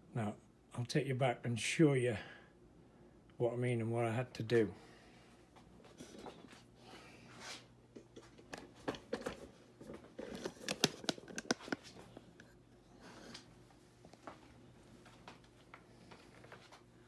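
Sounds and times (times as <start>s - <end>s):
faint steady hum: 0.0s - 17.0s
rustling of things handled: 5.6s - 17.0s
objects clicking and knocking: 8.4s - 12.5s.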